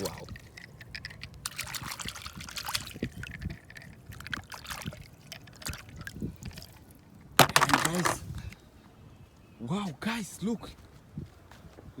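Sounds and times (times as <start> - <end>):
shallow water splashing: 0.0 - 8.2.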